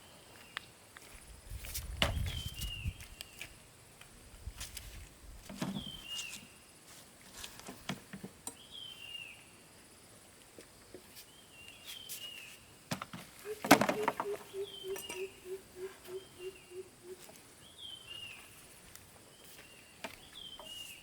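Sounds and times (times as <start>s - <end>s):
bird chirping: 13.4s - 18.6s, 19.4s - 21.0s.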